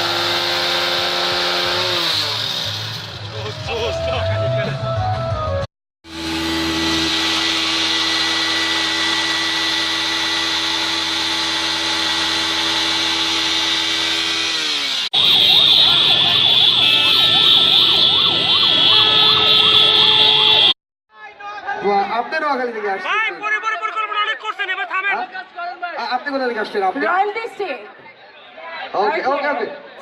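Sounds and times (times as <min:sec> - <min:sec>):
steady horn tones: 0:06.0 - 0:20.8
warbling siren horns: 0:06.1 - 0:20.8.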